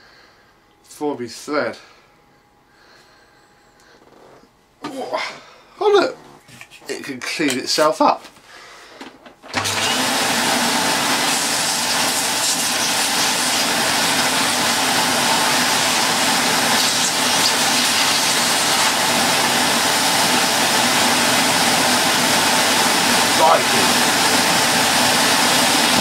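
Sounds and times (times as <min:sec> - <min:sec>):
vacuum cleaner suction rush: 0:09.5 - 0:26.0.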